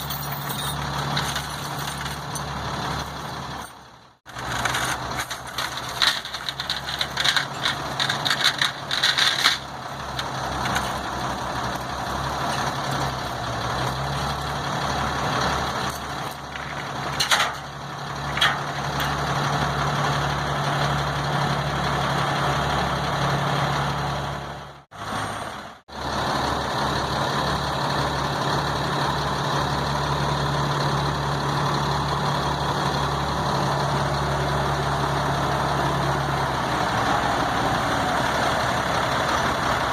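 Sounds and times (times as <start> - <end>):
rattling and clattering: 0.0 - 12.8
truck diesel engine droning: 0.0 - 39.9.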